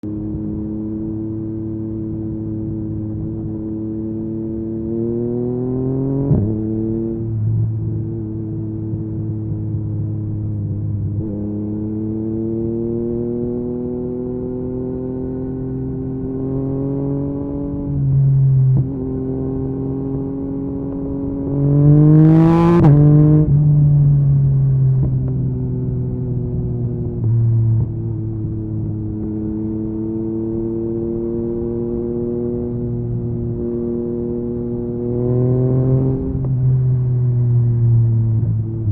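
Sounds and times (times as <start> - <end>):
motorcycle engine revving: 11.0 - 38.9.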